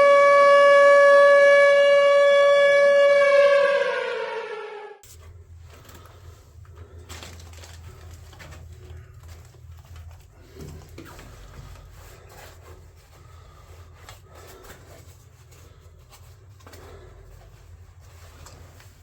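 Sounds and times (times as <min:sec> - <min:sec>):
steady low hum: 0:04.4 - 0:19.0
rustling: 0:05.0 - 0:19.0.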